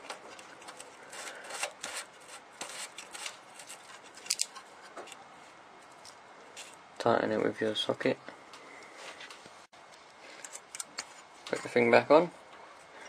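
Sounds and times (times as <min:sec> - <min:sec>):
metallic scrapes and clicks: 0:00.0 - 0:05.2, 0:10.3 - 0:11.8.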